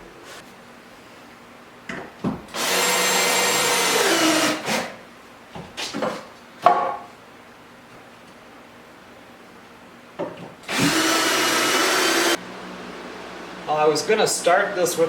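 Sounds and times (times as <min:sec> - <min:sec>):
power tool winding down: 0:02.6 - 0:04.8, 0:10.7 - 0:12.4.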